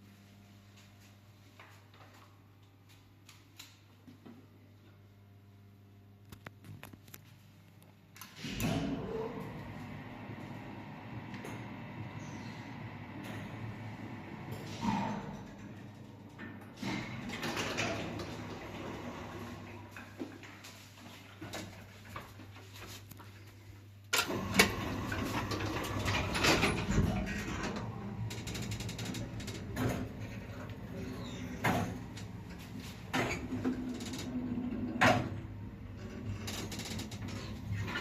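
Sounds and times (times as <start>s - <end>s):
lift motor humming: 8.4s - 20.0s, 24.2s - 38.0s.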